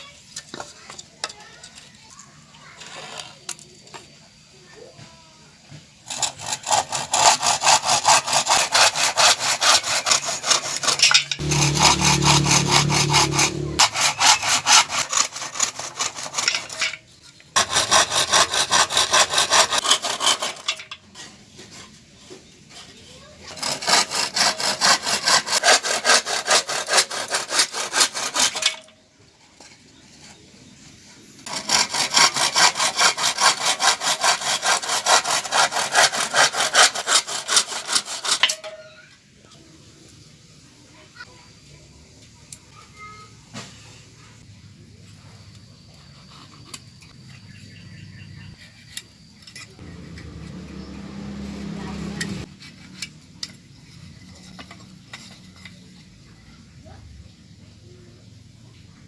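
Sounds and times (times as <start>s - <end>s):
hand saw cutting wood: 6.1s - 16.8s, 17.6s - 20.8s, 23.5s - 28.8s, 31.5s - 38.6s, 49.7s - 53.2s.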